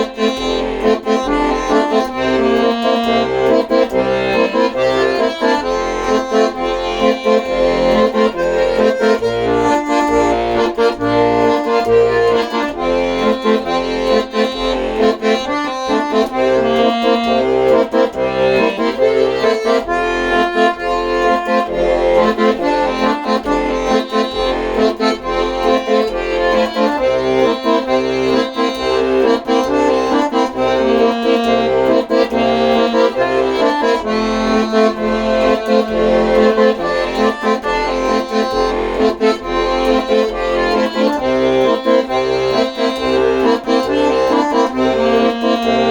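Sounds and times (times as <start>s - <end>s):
accordion tune: 0.0s - 45.9s.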